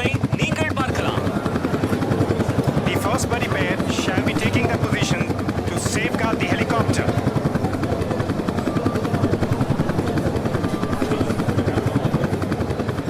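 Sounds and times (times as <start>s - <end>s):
helicopter rotors pulsing: 0.0s - 13.0s.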